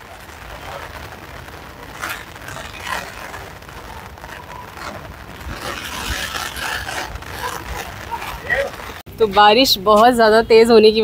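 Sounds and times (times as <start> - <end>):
canvas scraping and rustling: 0.0 - 9.0
heavy rain: 0.0 - 9.0.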